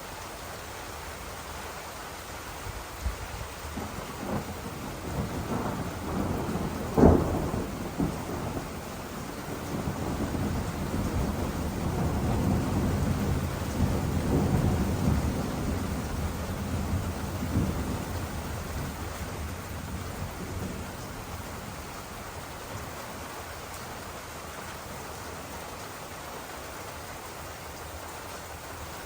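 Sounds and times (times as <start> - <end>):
sharp thunder crack: 3.8 - 8.7
thunder rumbling: 3.8 - 22.2.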